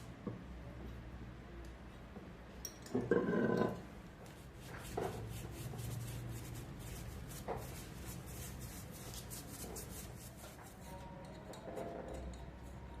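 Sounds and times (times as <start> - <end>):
scratchy strokes on hard surface: 4.3 - 11.0.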